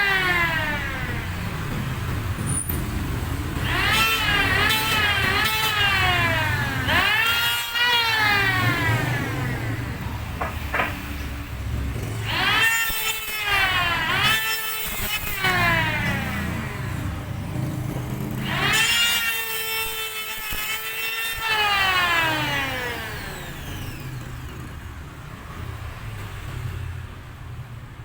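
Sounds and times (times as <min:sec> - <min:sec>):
wood planer motor whine: 0:00.0 - 0:01.8, 0:03.6 - 0:24.7.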